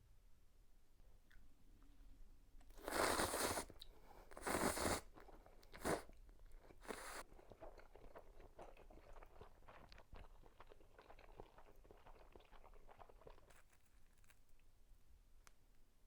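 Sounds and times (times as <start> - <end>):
crackling chewing: 2.7 - 14.7.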